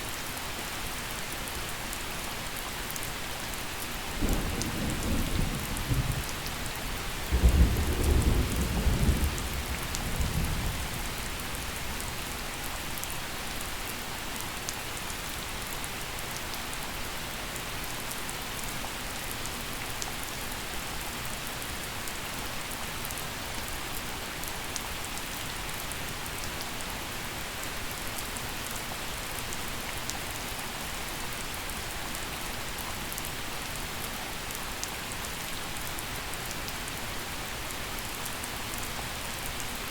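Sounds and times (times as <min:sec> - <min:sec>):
gentle rain falling: 0:00.0 - 0:39.9
thunder rumbling: 0:04.2 - 0:12.4.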